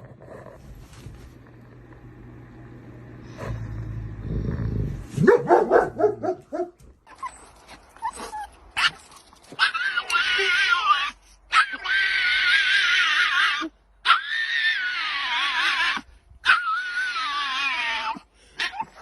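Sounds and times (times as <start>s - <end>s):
low hum: 0.0s - 6.8s
dog barking: 5.2s - 6.8s.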